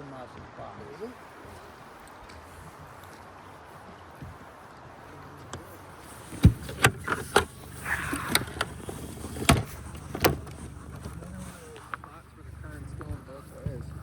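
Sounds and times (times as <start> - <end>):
low steady hum: 1.0 - 14.0
sharp knocks and clunks: 5.4 - 11.3.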